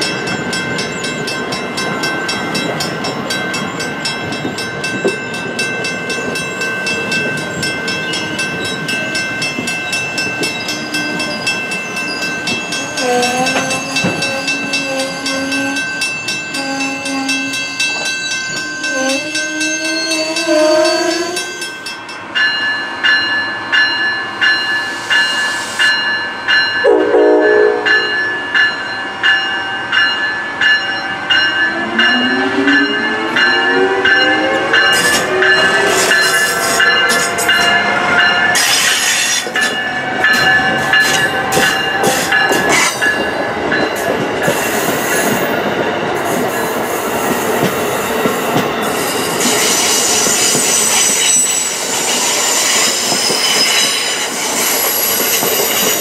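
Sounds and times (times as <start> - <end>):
crossing bell ringing: 0.0 - 56.0
train rolling past: 0.0 - 56.0
train horn blasts: 12.8 - 15.9, 16.5 - 17.8, 18.7 - 21.6, 26.8 - 28.2, 31.7 - 38.4.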